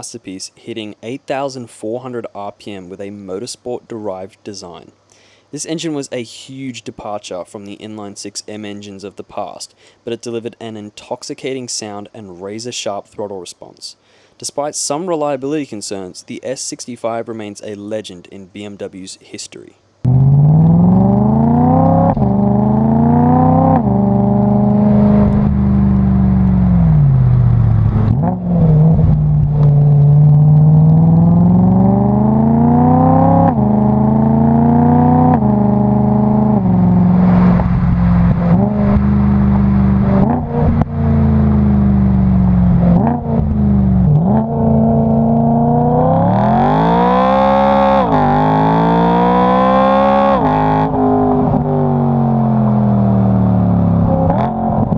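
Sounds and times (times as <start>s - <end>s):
car engine revving hard: 20.1s - 53.0s.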